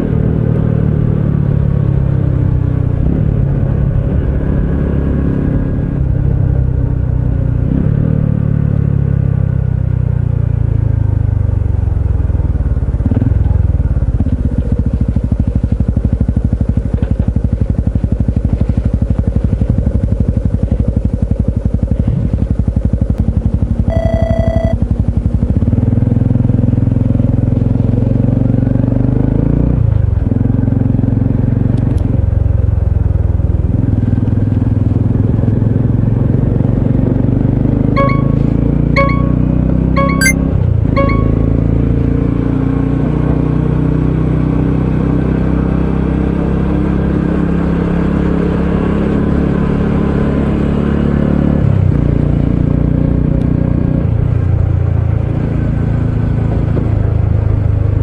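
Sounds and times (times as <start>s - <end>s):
short beep: 23.9s - 24.8s, 38.0s - 40.4s, 41.0s - 41.7s.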